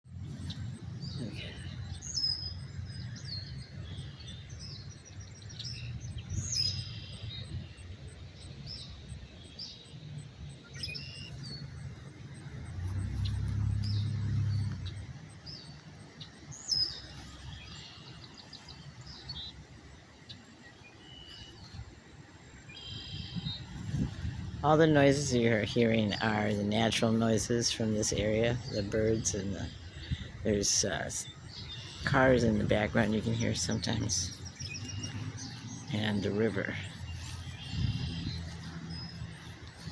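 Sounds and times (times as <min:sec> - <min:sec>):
wild birds chirping: 0:00.0 - 0:39.9
low rumble: 0:31.7 - 0:39.9.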